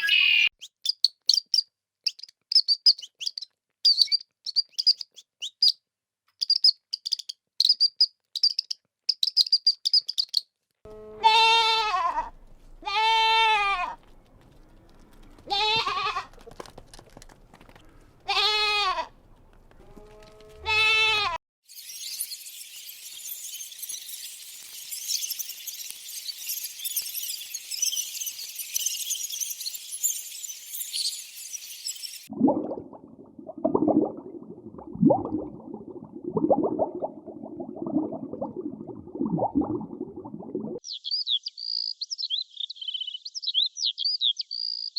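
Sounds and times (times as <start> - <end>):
farm animal bleating: 10.9 - 14.1, 14.9 - 16.4, 18.2 - 21.4.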